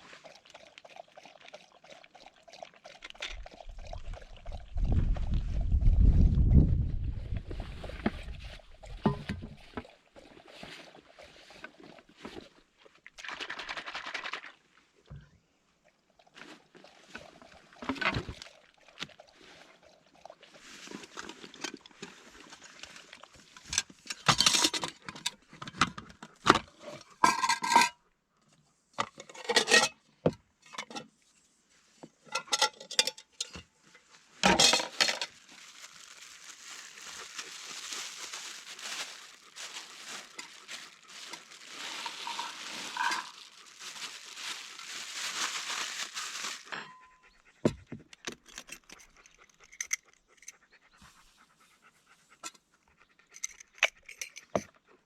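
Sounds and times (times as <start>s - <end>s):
metal cookware clinking and scraping: 9.1s - 9.5s, 27.2s - 28.0s, 29.2s - 30.0s, 32.3s - 33.6s, 34.4s - 35.3s, 41.9s - 43.4s.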